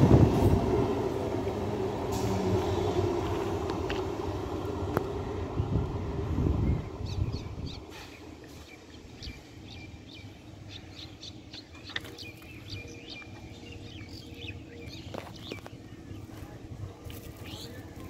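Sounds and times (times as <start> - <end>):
distant train rumble: 0.0 - 18.0
small birds chirping: 6.6 - 18.0.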